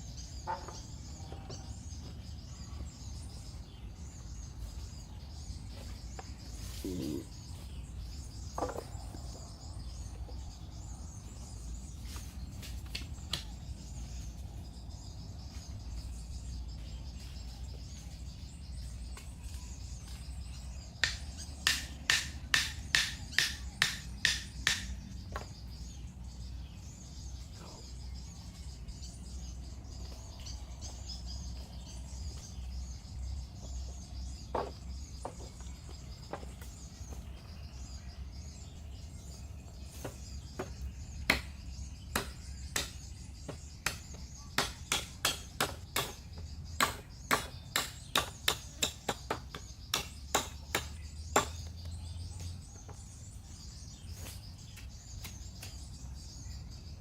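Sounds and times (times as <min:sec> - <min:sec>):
birds chirping: 0:00.0 - 0:57.0
sharp knocks: 0:21.0 - 0:25.5, 0:40.0 - 0:51.7.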